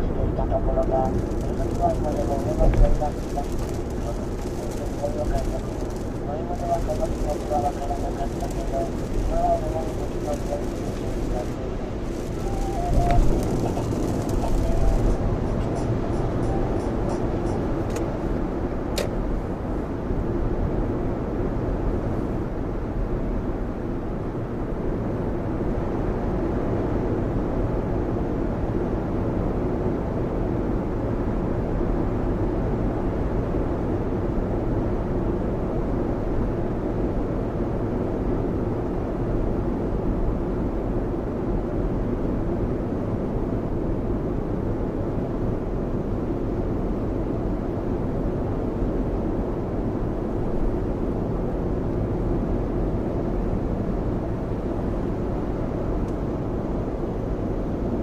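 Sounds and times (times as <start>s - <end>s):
tyres rumbling on wet road: 0.1s - 16.9s
rain on car: 0.8s - 15.7s.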